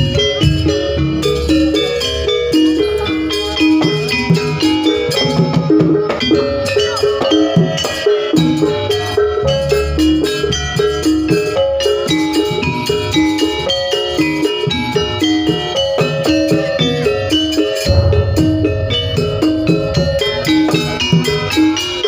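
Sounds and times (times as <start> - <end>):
gamelan ensemble music: 0.0 - 22.0
drums and heavy bass: 16.3 - 22.0.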